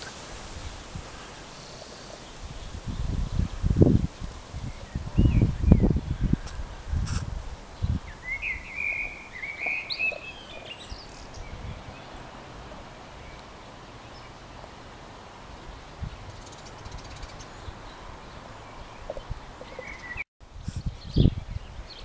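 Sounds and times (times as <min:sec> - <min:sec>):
faint outdoor background: 0:00.0 - 0:22.0
bird chirping and warbling: 0:07.8 - 0:12.2, 0:18.6 - 0:20.2.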